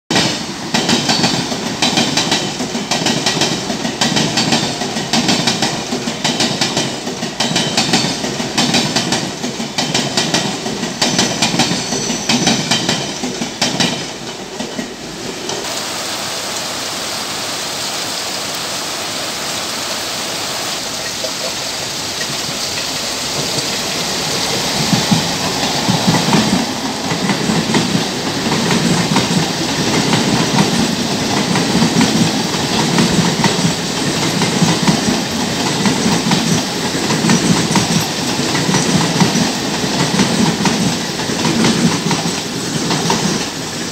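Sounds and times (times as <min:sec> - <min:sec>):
train wheels clickety-clack: 0:00.1 - 0:15.7, 0:21.0 - 0:43.9
train rumbling: 0:00.1 - 0:43.9
heavy rain hissing: 0:15.3 - 0:43.9.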